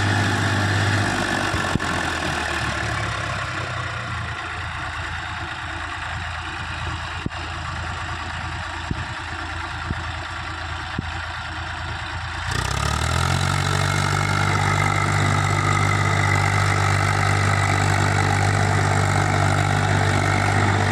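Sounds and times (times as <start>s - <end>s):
tractor diesel engine idling: 0.0s - 20.9s.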